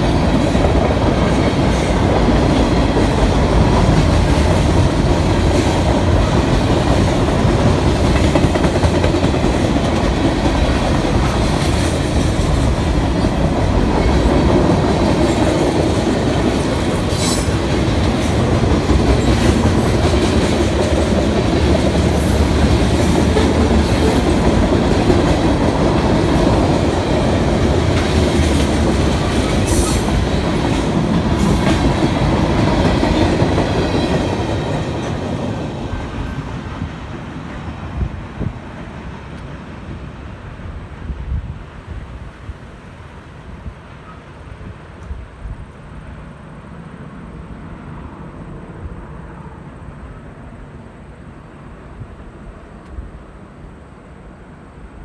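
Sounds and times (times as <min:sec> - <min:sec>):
freight train wheels clicking: 0:00.0 - 0:39.6.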